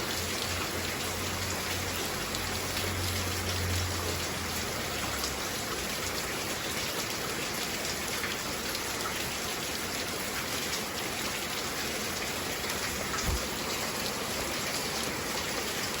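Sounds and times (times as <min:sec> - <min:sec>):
heavy rain: 0:00.0 - 0:16.0
low thump: 0:13.2 - 0:13.5.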